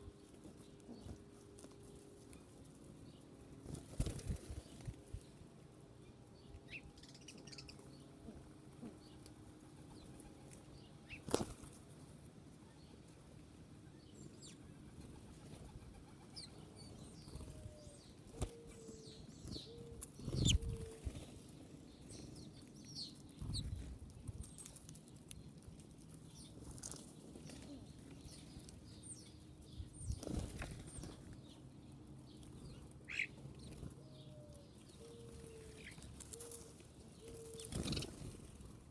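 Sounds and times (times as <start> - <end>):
bird wings flapping: 3.6 - 5.0.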